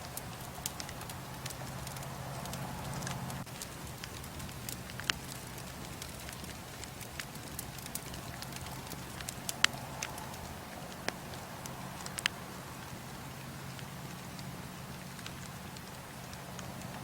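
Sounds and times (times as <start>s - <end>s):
bonfire hissing: 0.0s - 17.0s
burning wood crackling and popping: 0.0s - 17.0s.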